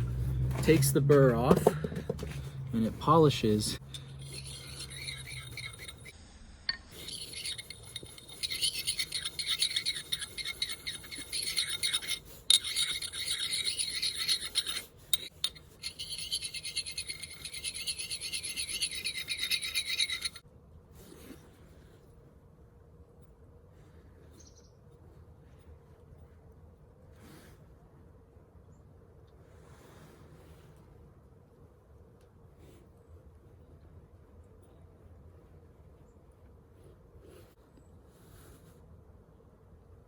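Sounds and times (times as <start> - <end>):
whetstone scraping on steel: 3.0 - 6.1, 6.7 - 20.4.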